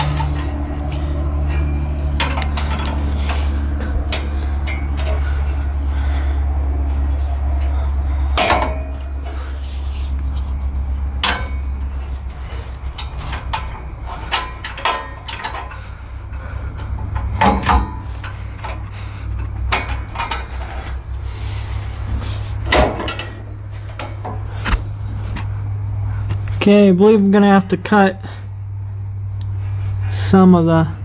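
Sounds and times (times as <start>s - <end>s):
metal tools clinking and knocking: 0.0s - 5.6s, 11.2s - 12.2s, 12.9s - 15.9s, 22.7s - 24.1s
steady low hum: 0.0s - 31.0s.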